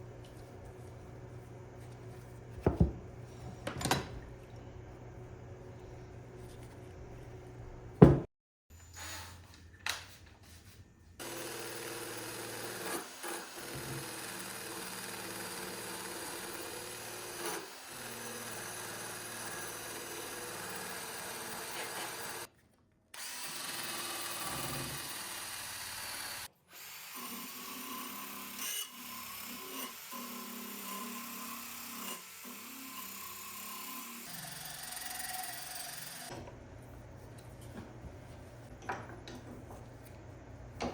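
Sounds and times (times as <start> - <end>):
power tool running: 11.2 - 22.5, 23.2 - 36.3.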